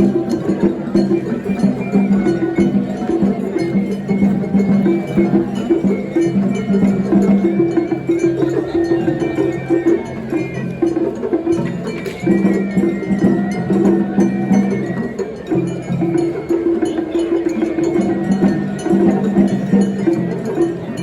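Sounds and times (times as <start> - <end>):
festival music melody: 0.0 - 21.0
percussion strikes: 0.0 - 21.0.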